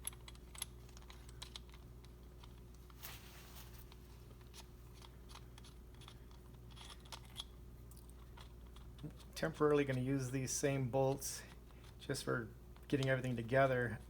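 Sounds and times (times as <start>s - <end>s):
small metal clicks: 0.0s - 3.0s, 4.4s - 10.0s
light handling noise: 0.0s - 14.0s
scraping rustle: 2.5s - 5.1s.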